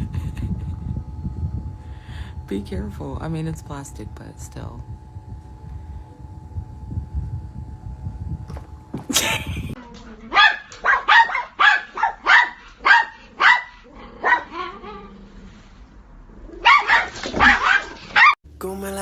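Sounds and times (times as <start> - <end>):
dog barking: 10.3 - 15.0, 16.6 - 18.4.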